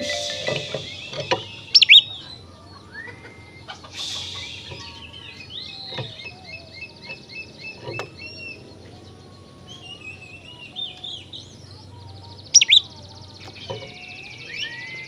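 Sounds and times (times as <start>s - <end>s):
repeated bird chirps: 0.0s - 2.1s
bird whistled notes: 0.0s - 2.2s, 4.0s - 6.6s, 12.6s - 12.8s.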